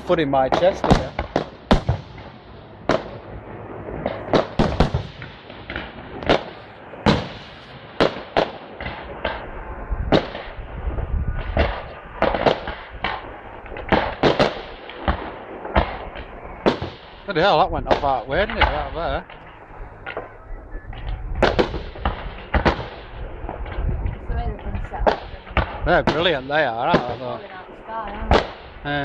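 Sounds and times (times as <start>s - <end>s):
low rumble: 8.7s - 29.0s.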